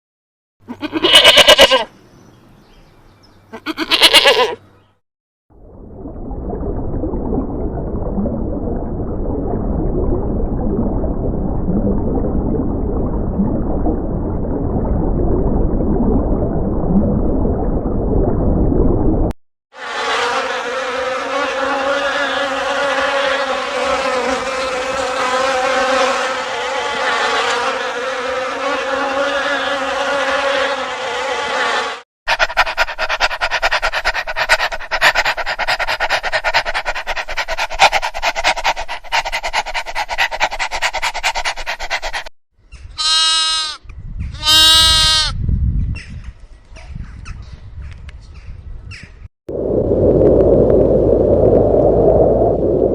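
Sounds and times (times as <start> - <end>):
droning insect buzz: 19.8 - 32.0
dull low rushing noise: 49.5 - 52.9.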